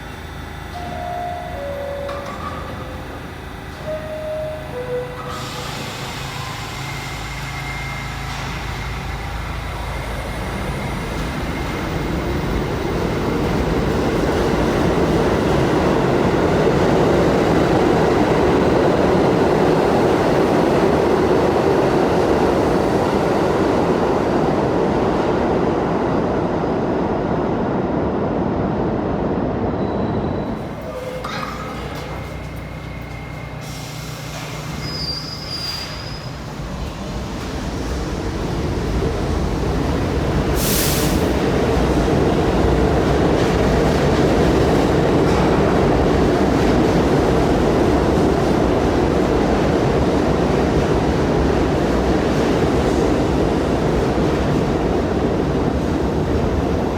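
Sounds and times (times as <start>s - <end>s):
subway train wheels rumbling: 0.0s - 56.9s.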